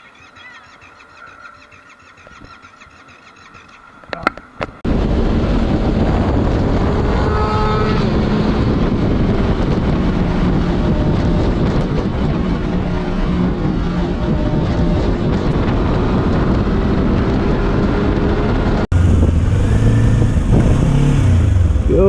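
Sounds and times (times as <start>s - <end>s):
wind noise on microphone: 4.6s - 22.0s
motorcycle engine: 4.8s - 22.0s.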